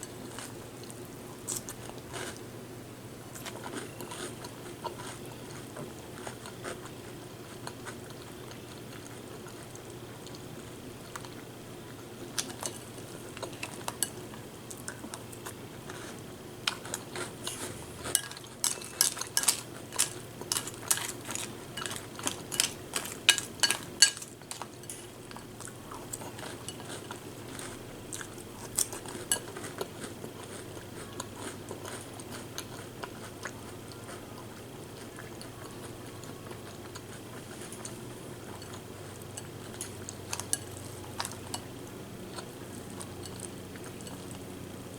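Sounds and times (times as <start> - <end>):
spoon clinking against bowl: 18.1 - 25.1.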